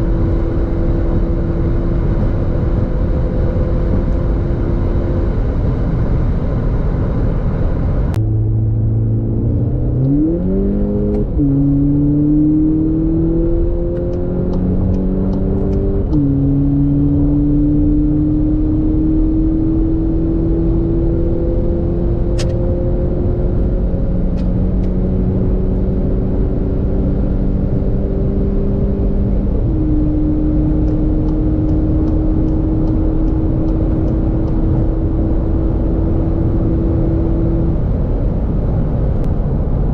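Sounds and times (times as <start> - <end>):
car engine accelerating hard: 0.0 - 39.9.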